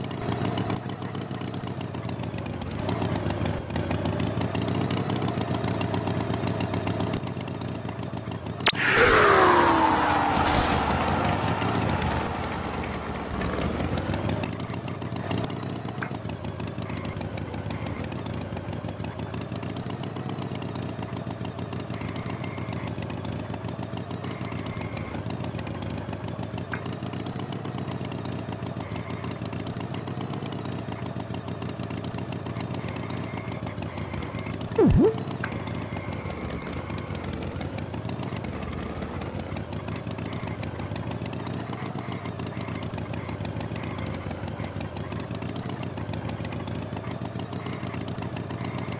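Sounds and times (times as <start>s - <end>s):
loud sound dropping in pitch: 8.7s - 14.4s, 34.8s - 35.2s.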